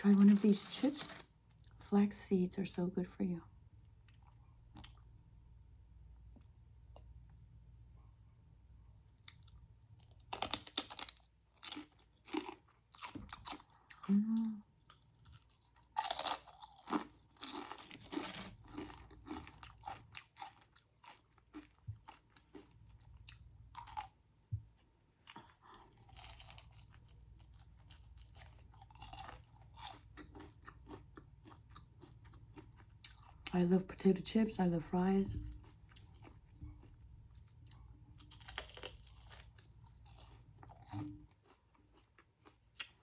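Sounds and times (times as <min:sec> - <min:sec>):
crunching chips: 0:00.0 - 0:01.8, 0:09.2 - 0:24.2, 0:25.2 - 0:33.4, 0:37.6 - 0:43.0
chewing: 0:04.0 - 0:05.1, 0:09.2 - 0:24.1, 0:25.2 - 0:33.5, 0:35.4 - 0:43.0.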